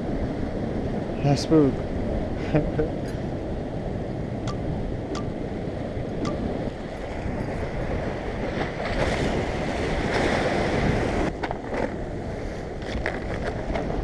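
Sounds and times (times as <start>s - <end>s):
waves washing against shore: 0.0s - 14.0s
wind blowing across microphone: 0.0s - 14.0s.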